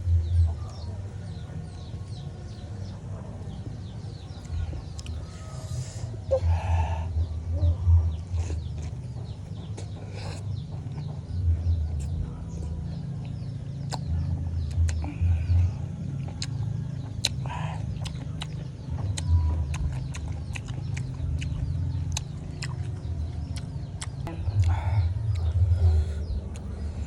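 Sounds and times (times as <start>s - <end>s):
chewing crunchy raw fruit: 3.4s - 5.9s, 8.0s - 27.0s.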